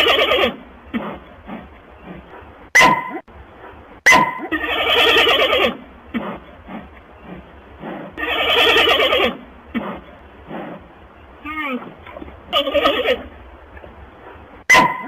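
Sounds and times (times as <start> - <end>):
panda high squeaks: 4.1 - 5.7, 14.7 - 15.0.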